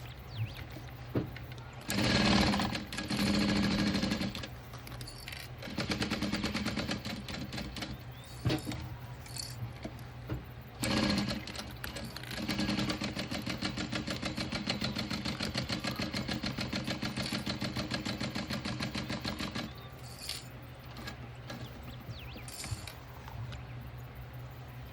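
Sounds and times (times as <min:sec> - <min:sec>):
sewing machine motor hum: 0:01.9 - 0:04.5, 0:10.8 - 0:19.9.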